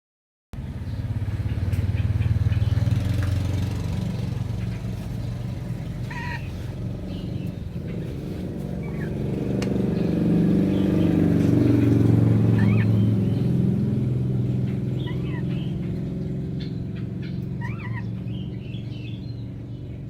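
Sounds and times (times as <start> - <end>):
low engine rumble: 0.6 - 20.0
bird call: 6.0 - 8.1, 12.5 - 13.5, 14.9 - 15.8, 16.6 - 19.2.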